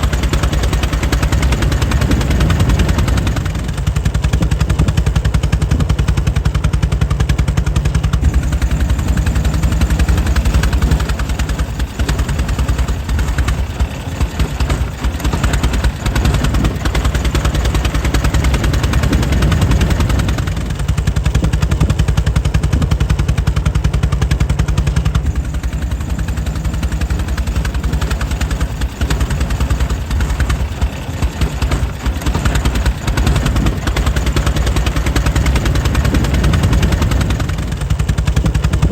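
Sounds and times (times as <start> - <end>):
air-cooled engine running: 0.0 - 38.9.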